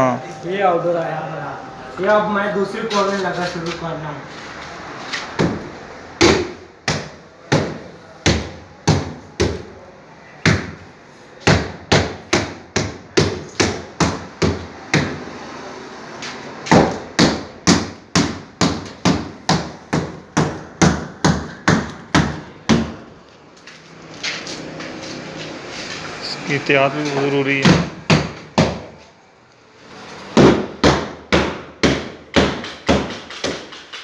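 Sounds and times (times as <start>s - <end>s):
hammer striking wooden crate: 5.4s - 9.7s, 11.5s - 15.2s, 16.7s - 23.1s, 27.6s - 29.0s, 30.3s - 34.0s.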